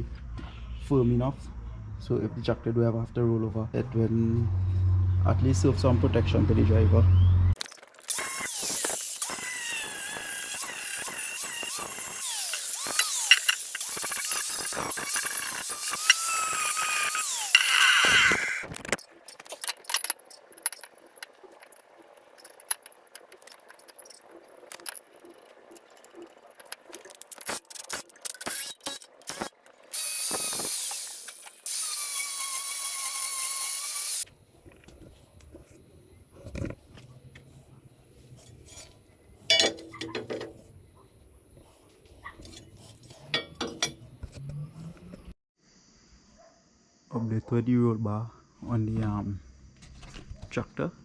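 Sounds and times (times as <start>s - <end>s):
tools and steel clanking: 7.6s - 18.1s, 19.0s - 32.8s, 38.4s - 40.7s, 42.3s - 44.6s
power tool whining: 8.1s - 18.7s, 27.4s - 34.3s.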